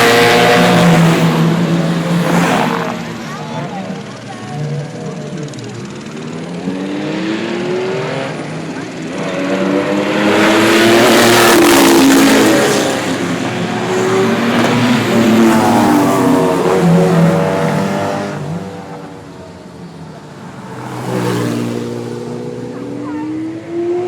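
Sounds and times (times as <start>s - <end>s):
sports car engine accelerating: 0.0s - 24.0s
another engine revving: 4.7s - 19.2s.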